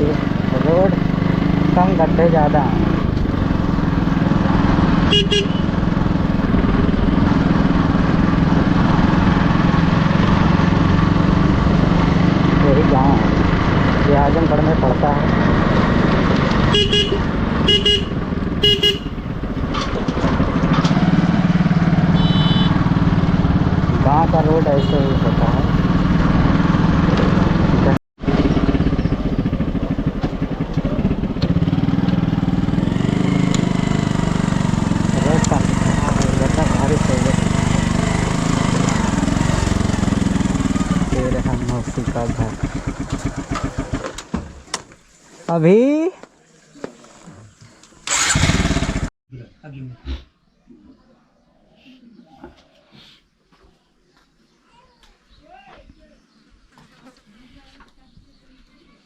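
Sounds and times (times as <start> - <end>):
motorcycle engine running: 0.0 - 44.7, 48.1 - 49.1
vehicle horn beeps: 5.1 - 5.7, 16.7 - 19.2, 22.2 - 22.8.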